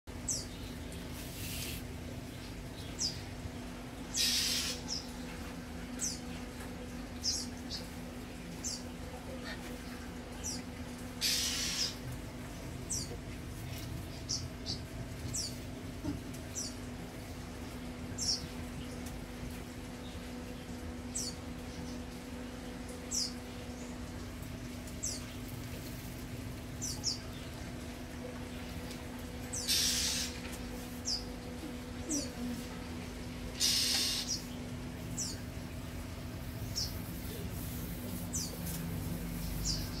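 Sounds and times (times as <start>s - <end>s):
small birds chirping: 0.1s - 17.0s, 17.6s - 19.2s, 19.9s - 24.3s, 24.9s - 26.1s, 26.7s - 40.0s
steady low hum: 0.1s - 40.0s
hissing rustle: 1.0s - 2.0s, 36.7s - 40.0s.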